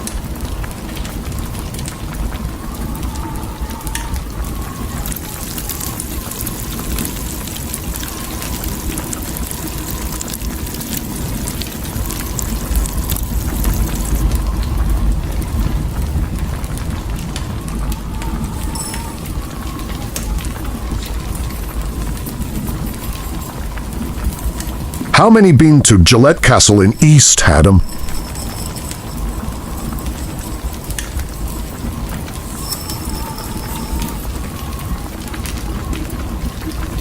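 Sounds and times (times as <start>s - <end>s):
hiss of wind and precipitation: 0.0s - 37.0s
low wind rumble: 0.2s - 25.2s.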